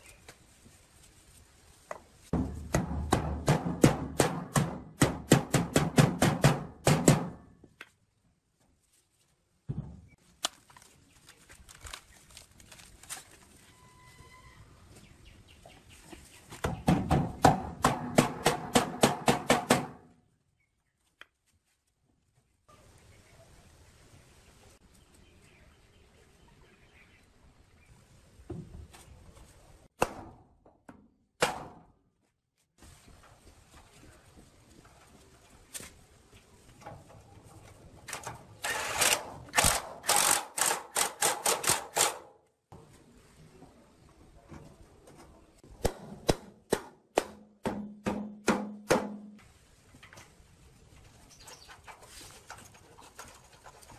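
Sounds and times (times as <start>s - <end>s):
faint background noise: 0.0s - 30.3s, 31.6s - 53.9s
sharp knocks: 45.8s - 49.4s.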